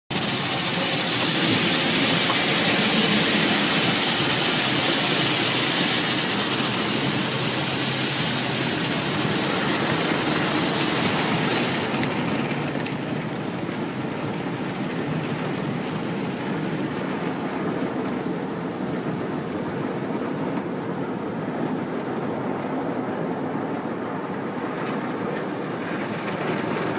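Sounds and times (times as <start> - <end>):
car wash spraying water: 0.1 - 20.7.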